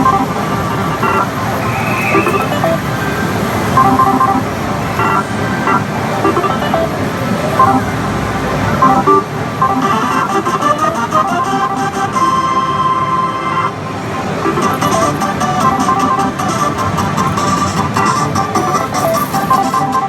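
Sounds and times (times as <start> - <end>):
electronic beeps and jingles: 0.0 - 3.0, 3.7 - 7.0, 7.6 - 8.0, 8.8 - 10.5
gaming hall din: 0.0 - 20.0.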